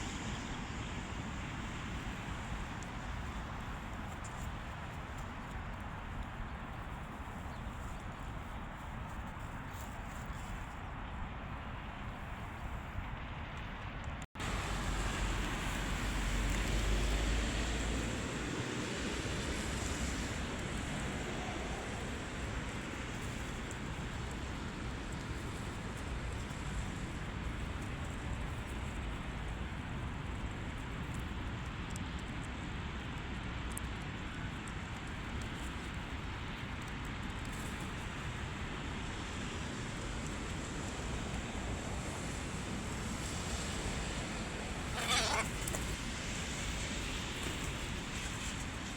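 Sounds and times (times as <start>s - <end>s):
rushing wind: 0.0s - 31.0s, 37.6s - 48.9s
wind gusts buffeting microphone: 0.0s - 31.1s.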